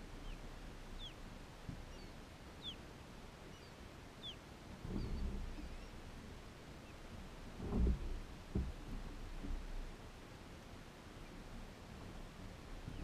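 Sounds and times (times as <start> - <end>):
low wind-like hiss: 0.0 - 13.0
bird chirping: 0.2 - 0.4, 1.0 - 1.2, 1.9 - 2.8, 3.5 - 4.4.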